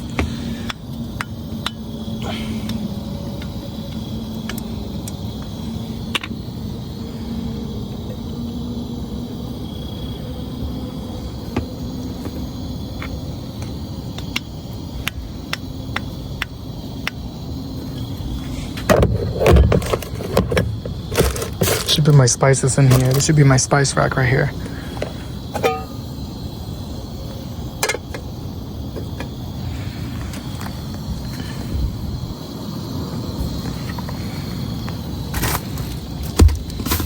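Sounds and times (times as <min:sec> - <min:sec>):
faint hum: 0:00.0 - 0:36.0
steady low rumble: 0:22.0 - 0:36.8.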